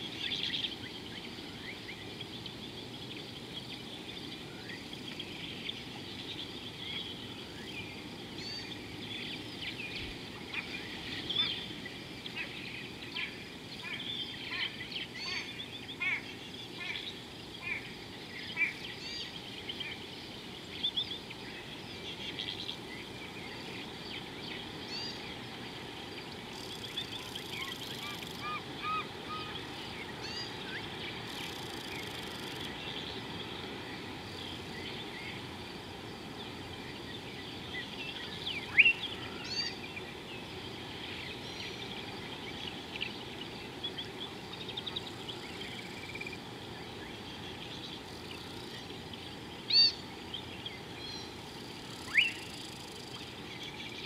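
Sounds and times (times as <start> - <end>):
steady outdoor hiss: 0.0 - 54.0
birds chirping and whistling: 26.5 - 33.5, 49.7 - 51.3, 52.0 - 54.0.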